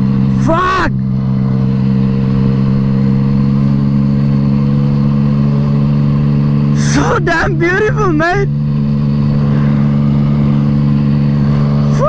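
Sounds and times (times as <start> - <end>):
motorcycle engine running steadily: 0.0 - 12.0.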